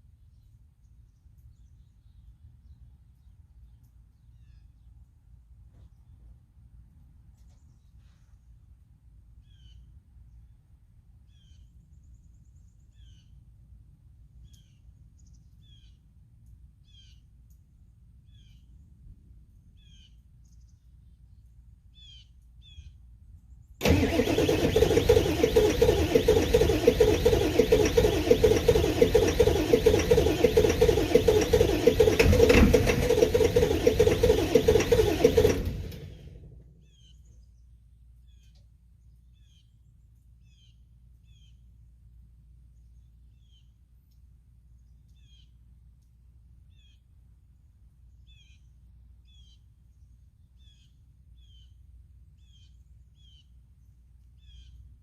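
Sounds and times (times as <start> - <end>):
diesel engine cranking: 23.8 - 36.7.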